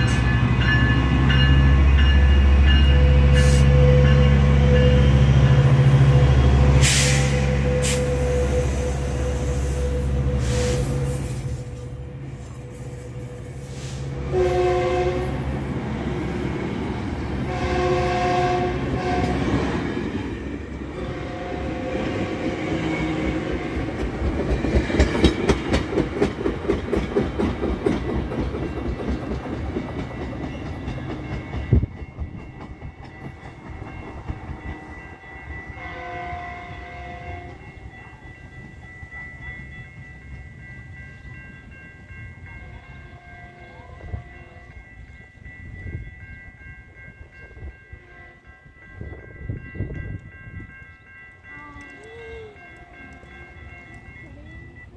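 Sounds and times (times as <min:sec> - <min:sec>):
train air horn blasts: 0:02.9 - 0:15.5, 0:17.4 - 0:19.6, 0:20.9 - 0:23.6, 0:35.8 - 0:37.7
wheels clacking over rail joints: 0:23.5 - 0:34.8.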